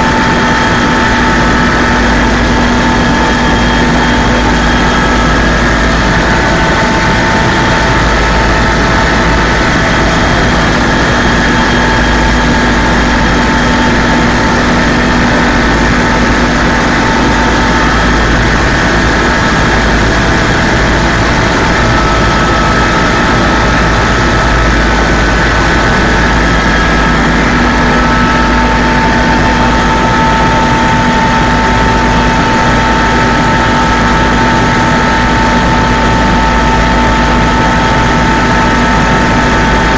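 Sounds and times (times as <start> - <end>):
helicopter engine and rotor: 0.0 - 39.9
whining tones: 0.1 - 39.9.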